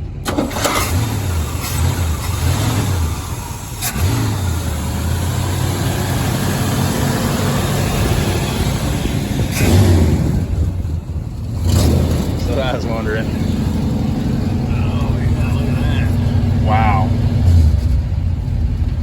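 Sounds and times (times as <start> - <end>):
car engine running and revving: 0.0 - 19.0.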